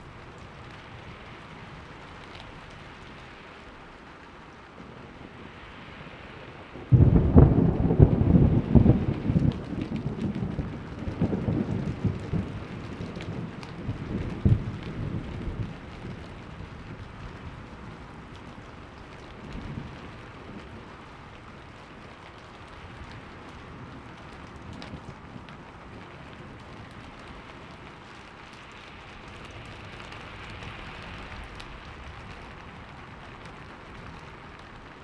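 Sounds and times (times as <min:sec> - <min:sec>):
steady rain: 0:00.0 - 0:35.0
thunder rumbling: 0:04.8 - 0:35.0
sharp thunder crack: 0:06.9 - 0:10.0.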